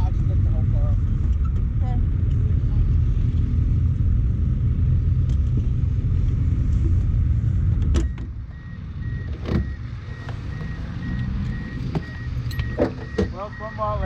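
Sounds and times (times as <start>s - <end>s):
car engine idling: 0.0s - 14.0s
rapid electronic warning beep: 8.1s - 14.0s.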